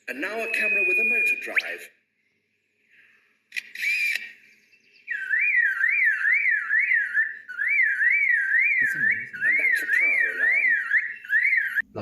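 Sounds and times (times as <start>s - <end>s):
bird mimicking car alarm siren: 0.1s - 2.0s, 3.8s - 11.9s
bird mimicking rapid clicks: 3.5s - 4.4s.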